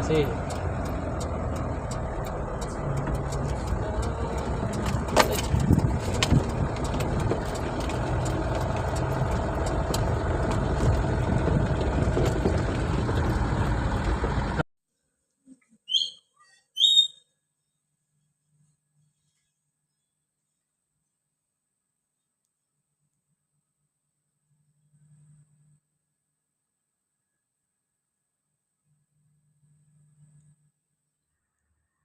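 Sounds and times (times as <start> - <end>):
vehicle engine and road rumble: 0.0 - 14.7.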